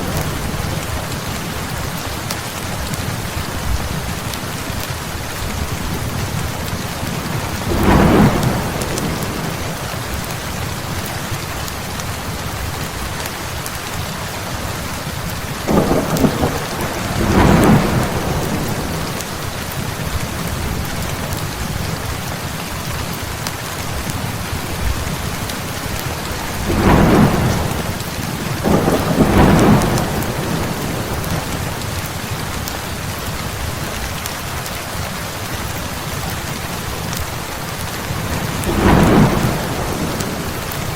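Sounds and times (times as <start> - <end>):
thunder rumbling: 0.0 - 11.6, 15.6 - 22.6, 23.4 - 33.5, 37.8 - 40.9
heavy rain: 0.0 - 40.9.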